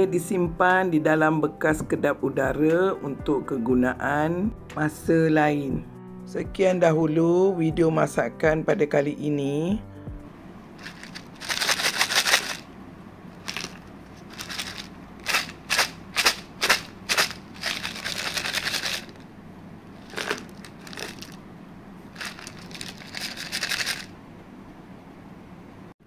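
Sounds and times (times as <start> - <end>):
crunchy chewing: 13.4 - 19.2, 20.0 - 21.4, 22.1 - 24.1.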